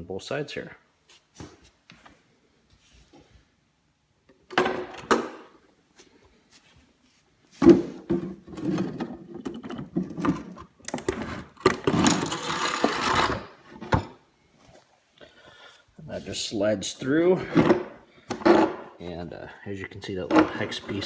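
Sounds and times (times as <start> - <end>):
parts scraping: 7.6 - 14.2.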